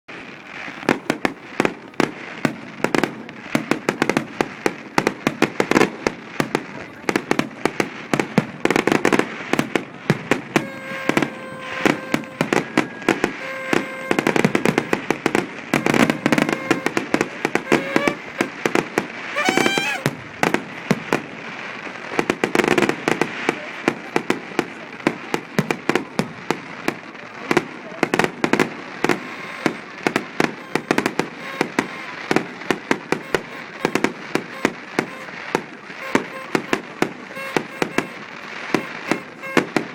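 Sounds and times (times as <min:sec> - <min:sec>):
fireworks banging and crackling: 0:00.1 - 0:39.9
rising firework whistle: 0:08.1 - 0:39.9.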